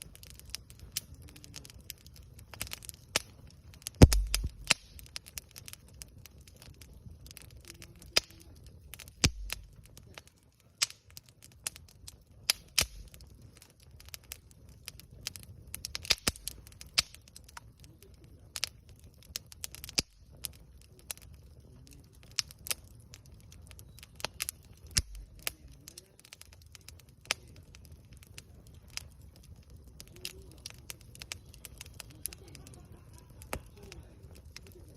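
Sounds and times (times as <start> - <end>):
campfire crackling and popping: 0.0 - 34.9.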